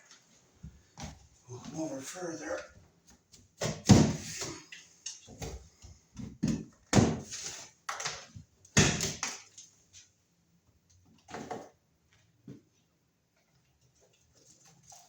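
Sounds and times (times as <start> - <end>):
drywall knocked and crunching: 3.6 - 4.6, 6.2 - 9.3.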